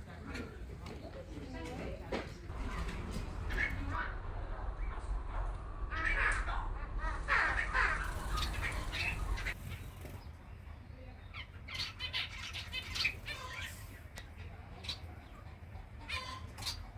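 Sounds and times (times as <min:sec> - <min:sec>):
finches beeping chirps: 0:08.0 - 0:10.6.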